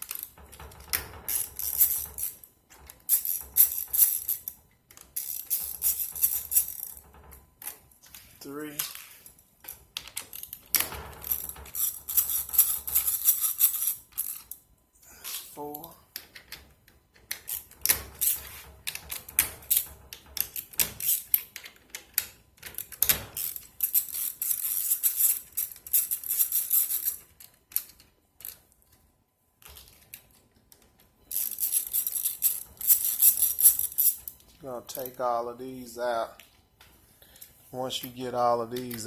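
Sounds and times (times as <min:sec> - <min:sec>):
metal clicks and knocks: 0:00.0 - 0:14.6, 0:15.8 - 0:24.0.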